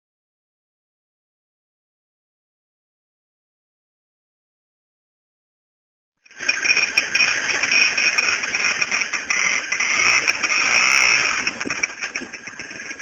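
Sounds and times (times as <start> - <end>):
motorcycle engine running: 6.3 - 13.0.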